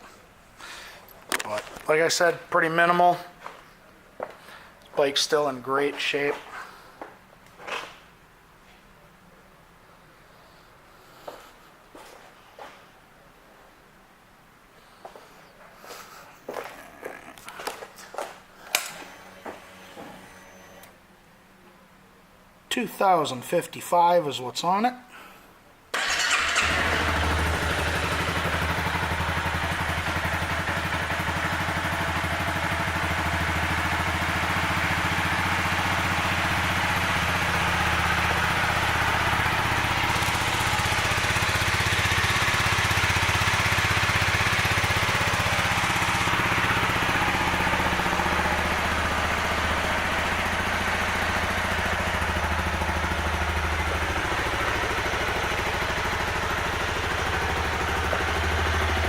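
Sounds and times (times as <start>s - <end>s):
motorcycle engine idling: 26.0s - 59.0s.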